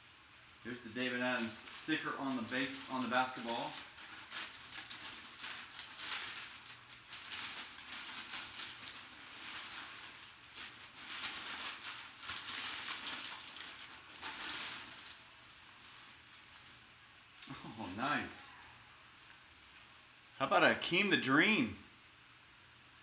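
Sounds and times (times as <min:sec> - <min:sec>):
plastic and cardboard packaging crinkling: 0:00.7 - 0:18.3.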